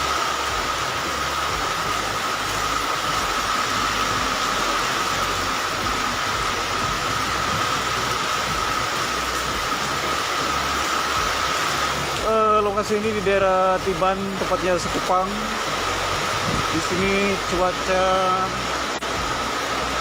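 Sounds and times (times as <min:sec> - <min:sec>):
heavy rain: 0:00.0 - 0:20.0
high whine: 0:00.0 - 0:20.0.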